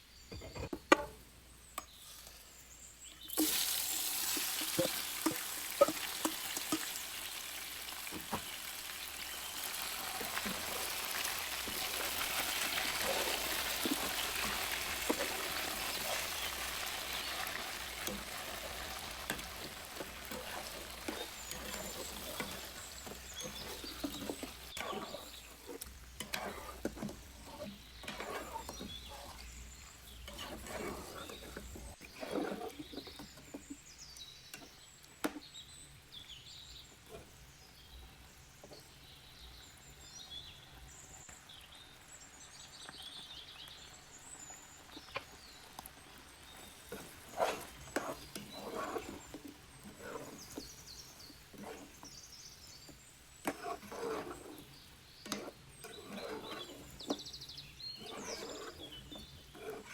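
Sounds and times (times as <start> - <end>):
birds chirping: 0.0 - 3.6, 4.3 - 59.9
spoon scraping cooking pot: 0.3 - 1.2, 1.8 - 7.2, 8.1 - 35.7, 46.1 - 59.9.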